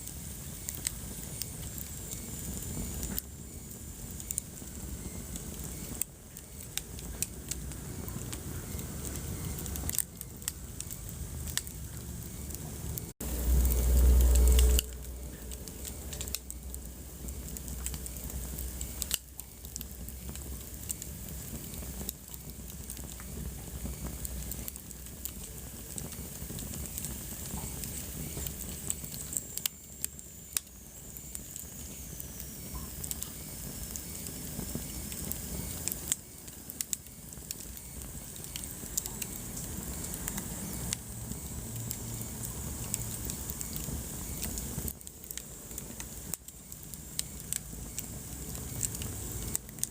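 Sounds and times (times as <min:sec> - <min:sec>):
wood fire crackling and popping: 0:00.0 - 0:49.9.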